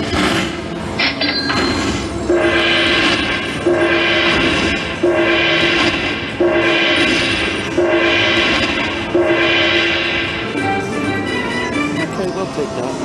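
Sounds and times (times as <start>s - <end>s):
gong-like ringing tone: 2.3s - 10.8s
slot machine electronic chime: 2.3s - 12.2s.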